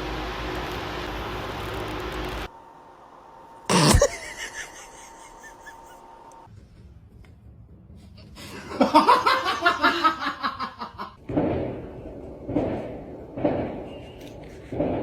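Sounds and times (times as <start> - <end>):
rapid laughter: 3.9 - 6.2, 8.5 - 11.2.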